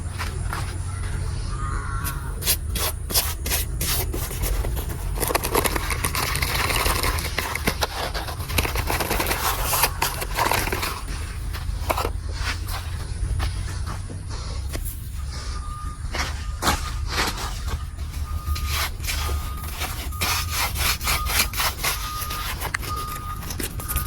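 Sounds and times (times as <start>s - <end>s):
scraping and rubbing with clicks: 2.0s - 15.1s, 16.1s - 24.0s
steady low rumble: 10.8s - 20.0s.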